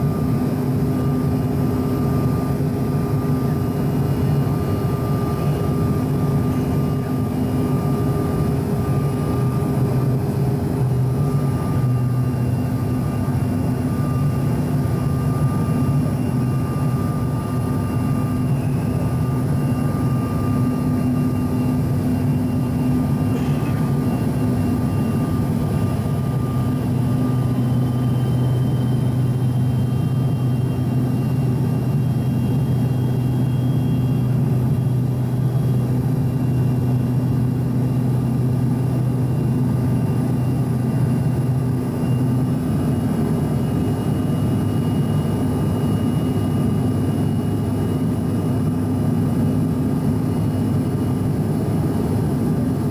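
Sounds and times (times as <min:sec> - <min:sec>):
faint high whine: 0:00.0 - 0:52.8
jet engines humming in cabin: 0:00.0 - 0:52.9.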